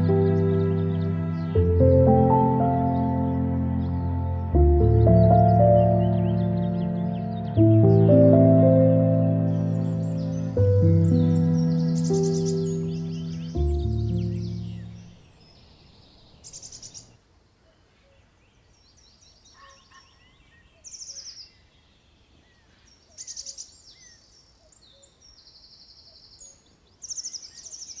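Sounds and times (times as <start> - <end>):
songbird high notes and chirps: 0.0 - 17.1
songbird trill: 0.0 - 17.2, 17.8 - 28.0.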